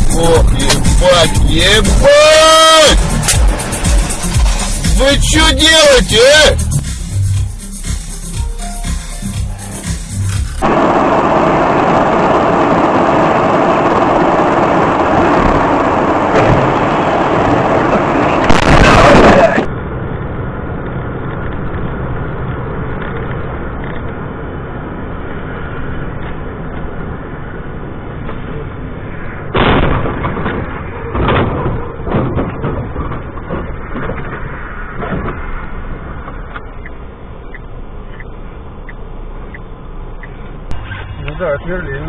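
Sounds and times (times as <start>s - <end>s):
car engine and road noise: 0.0s - 42.0s
loud thumps and knocks: 29.6s - 34.4s.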